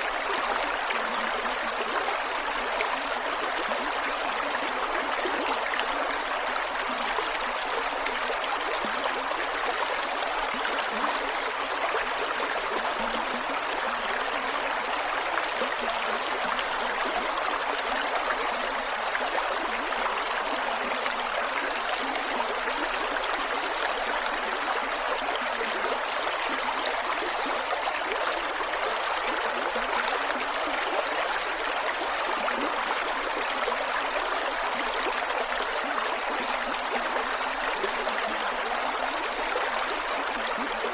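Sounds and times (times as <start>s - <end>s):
creek water flowing over rocks: 0.0s - 40.9s.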